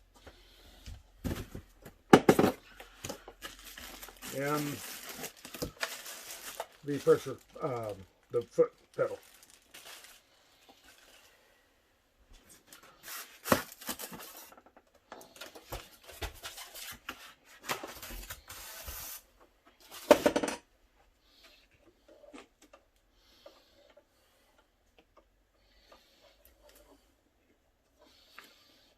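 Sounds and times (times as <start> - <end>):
packaging rustling and crinkling: 2.4 - 11.4, 12.4 - 19.2.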